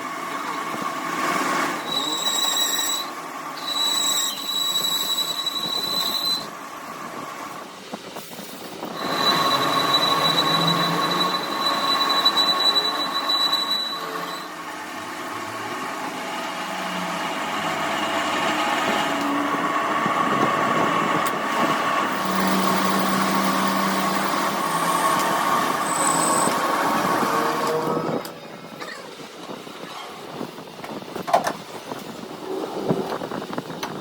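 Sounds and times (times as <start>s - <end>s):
metal-working machine whining: 1.7s - 6.6s, 8.8s - 28.9s.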